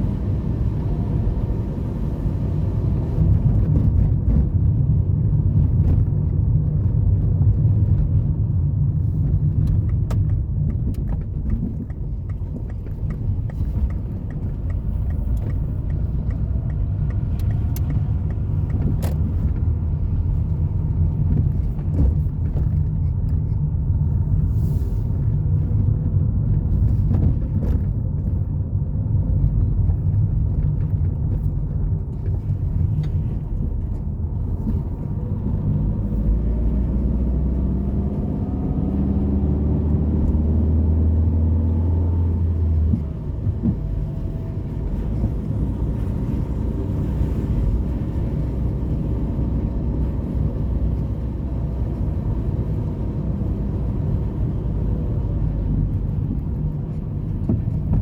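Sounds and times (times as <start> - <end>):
low road traffic rumble: 0.0 - 58.0
vehicle engine accelerating: 29.0 - 58.0.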